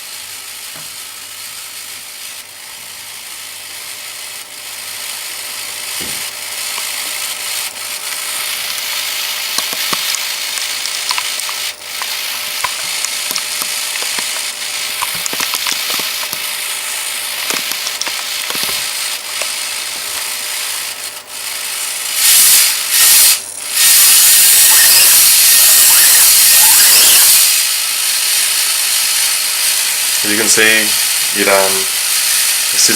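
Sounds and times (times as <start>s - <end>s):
small motor mechanism clattering: 1.8s - 32.9s
loud high motor whir: 5.5s - 32.9s.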